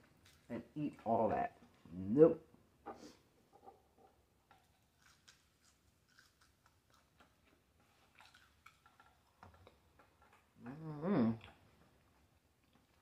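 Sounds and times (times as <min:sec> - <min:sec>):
faint chewing with mouth clicks: 0:02.9 - 0:13.0.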